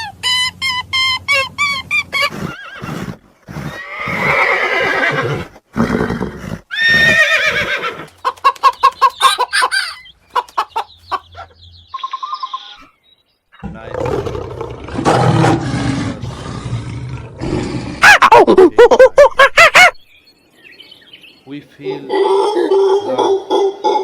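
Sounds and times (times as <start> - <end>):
horse whinnying: 1.9 - 8.1.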